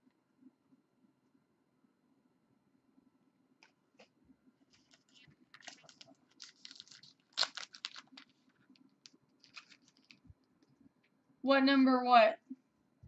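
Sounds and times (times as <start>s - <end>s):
trading cards rustling and snapping: 4.7s - 10.3s.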